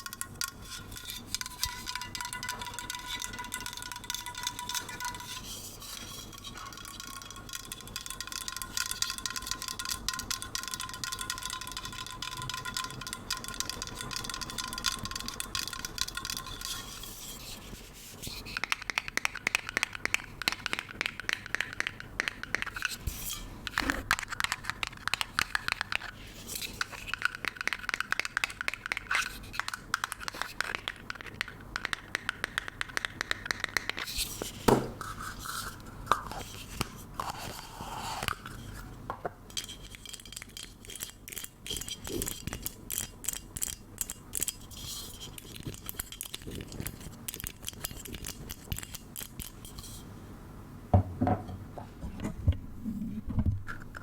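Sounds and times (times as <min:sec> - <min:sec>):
taps and scratches on objects: 0:18.2 - 0:35.5.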